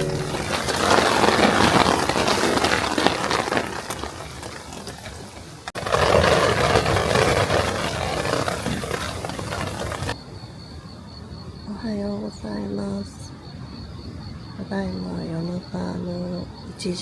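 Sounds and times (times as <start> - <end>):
strong wind gusting: 0.0 - 10.6.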